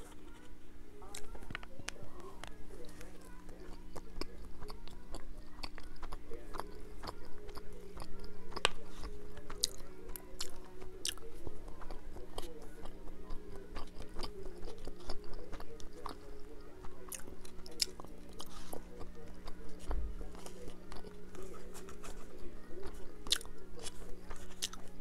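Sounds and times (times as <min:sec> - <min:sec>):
chewing with mouth clicks: 0:01.0 - 0:25.0.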